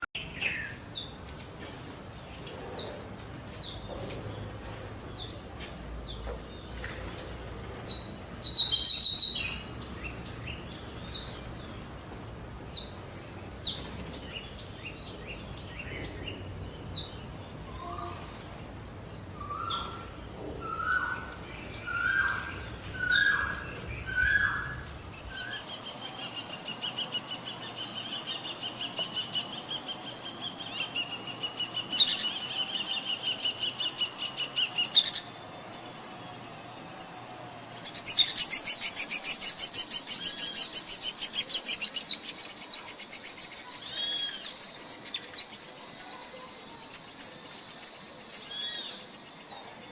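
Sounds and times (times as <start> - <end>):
forest birds chirping: 0.0 - 49.9
high bird trill: 8.0 - 9.7.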